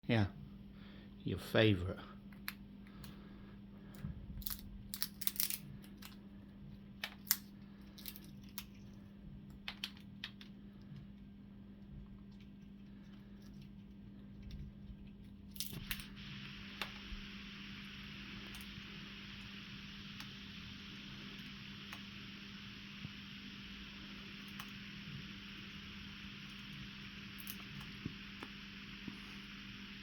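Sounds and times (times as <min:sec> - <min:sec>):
low hum: 0:00.2 - 0:30.0
parrot cracking nut shell: 0:04.4 - 0:06.2, 0:07.0 - 0:08.8.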